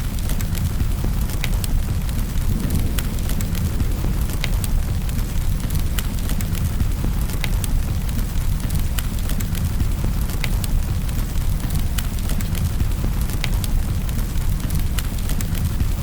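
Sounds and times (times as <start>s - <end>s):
fire popping: 0.0s - 16.0s
low fire rumble: 0.0s - 16.0s
wood fire crackling: 0.0s - 16.0s
fire hissing: 2.0s - 7.2s.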